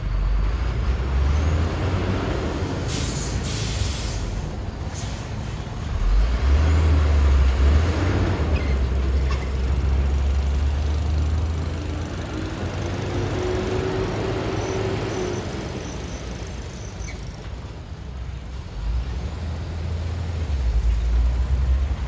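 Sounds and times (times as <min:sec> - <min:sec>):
diesel engine rumble: 0:00.0 - 0:22.0
hissing air bursts: 0:02.8 - 0:05.9.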